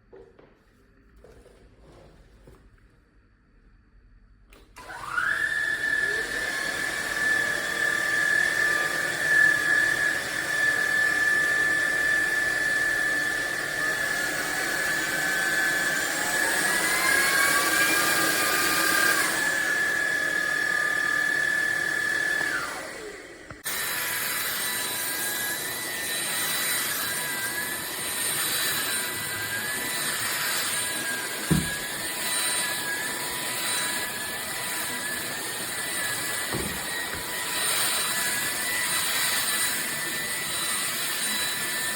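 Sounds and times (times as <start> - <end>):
vacuum motor whining: 4.5 - 41.9
knock: 31.5 - 31.8, 36.5 - 37.2.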